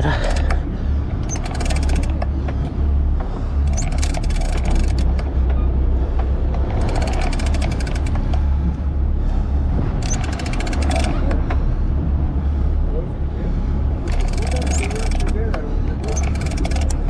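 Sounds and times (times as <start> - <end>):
rapid mechanical clicking: 0.0 - 5.6, 6.2 - 8.9, 9.8 - 11.6, 14.0 - 17.0
boat engine droning: 0.0 - 17.0.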